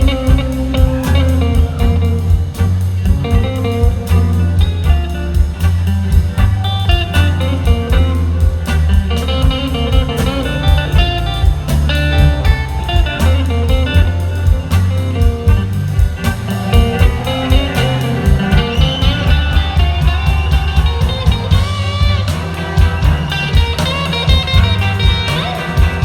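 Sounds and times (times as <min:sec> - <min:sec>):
blues-rock band playing: 0:00.0 - 0:26.0
electric guitar lead: 0:00.0 - 0:26.0.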